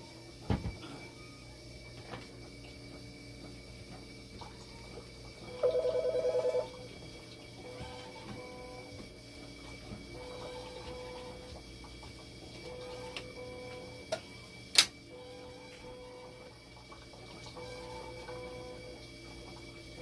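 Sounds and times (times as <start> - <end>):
faint steady alarm tone: 4.7 - 7.0, 7.6 - 9.0, 10.1 - 11.6, 12.6 - 14.0, 15.1 - 16.6, 17.6 - 19.0.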